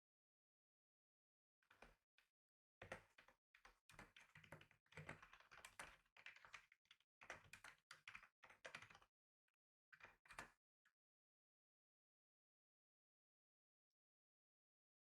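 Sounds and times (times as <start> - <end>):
faint keyboard typing: 2.8 - 9.1.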